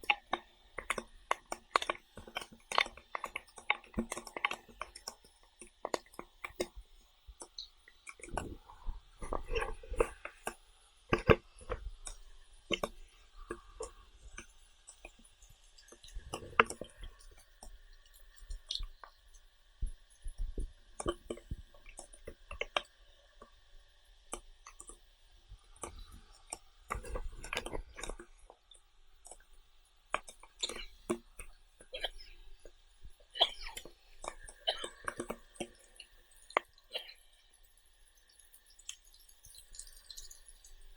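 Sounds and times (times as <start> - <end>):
mouth smacks and clicks: 0.0 - 6.8, 30.1 - 32.8
person chewing: 30.1 - 32.7, 33.4 - 37.2.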